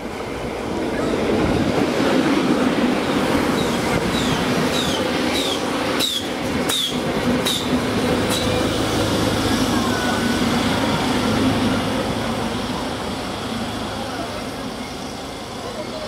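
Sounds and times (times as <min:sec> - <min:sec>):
train running hum: 0:00.0 - 0:16.0
train wheels clicking: 0:01.8 - 0:10.0.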